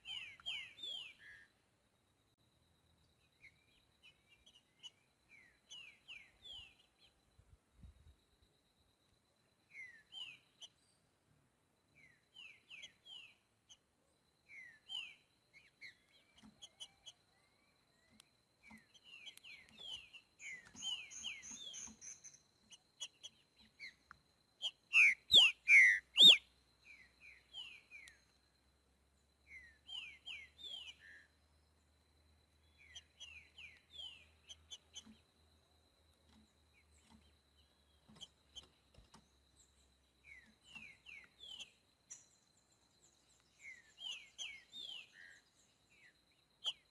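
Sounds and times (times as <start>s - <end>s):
bird whistled song: 0.0s - 1.5s, 9.7s - 10.7s, 14.5s - 17.2s, 18.6s - 22.4s, 24.6s - 28.2s, 29.5s - 31.3s, 32.8s - 35.1s, 40.2s - 42.4s, 43.4s - 46.9s
soft bird chirps: 0.0s - 46.9s.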